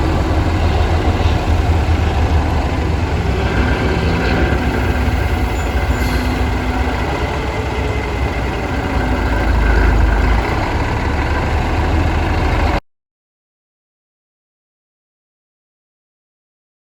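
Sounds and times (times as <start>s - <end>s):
diesel engine idling: 0.0s - 12.8s.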